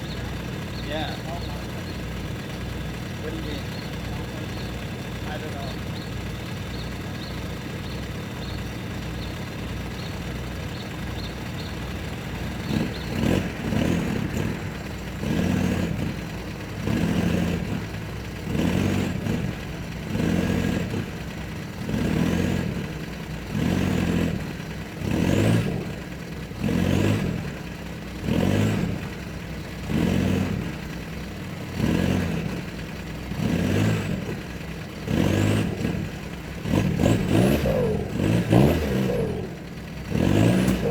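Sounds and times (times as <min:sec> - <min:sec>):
small truck engine revving: 0:00.0 - 0:40.9.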